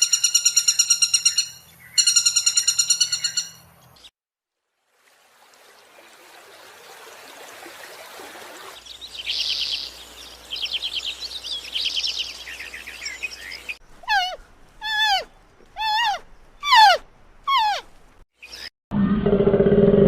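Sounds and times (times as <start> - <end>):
bird chirping in high trills: 0.0 - 4.1, 8.8 - 17.8
outdoor hiss: 4.8 - 18.2.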